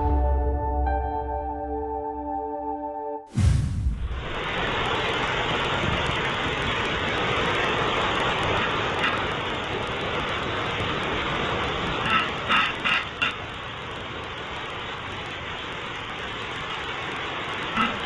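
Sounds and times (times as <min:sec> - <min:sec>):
low rumble: 0:03.3 - 0:07.3
rain falling: 0:03.9 - 0:18.0.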